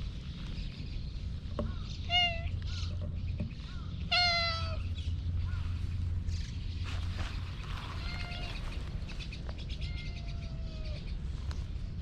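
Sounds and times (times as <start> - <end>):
steady low rumble: 0.0 - 12.0
cat meowing: 4.1 - 4.8, 8.0 - 8.6, 9.8 - 11.0.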